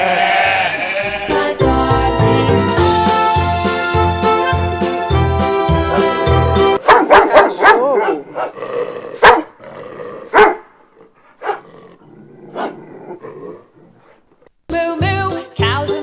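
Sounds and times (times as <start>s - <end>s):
dog barking: 6.8s - 8.6s, 9.2s - 9.6s, 10.3s - 10.7s, 11.4s - 11.7s.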